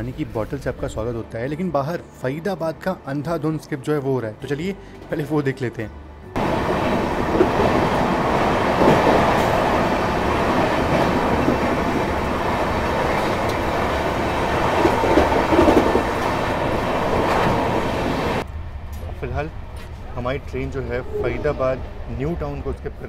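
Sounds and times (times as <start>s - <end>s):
track clickety-clack: 6.4s - 19.1s
train wheels on rails: 6.4s - 20.6s
wind rush: 6.4s - 23.0s.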